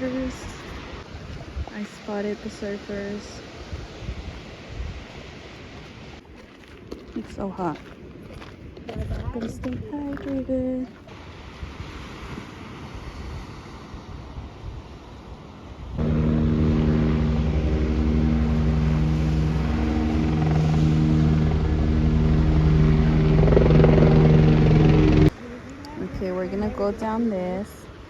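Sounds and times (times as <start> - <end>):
motor engine droning: 16.0 - 25.3.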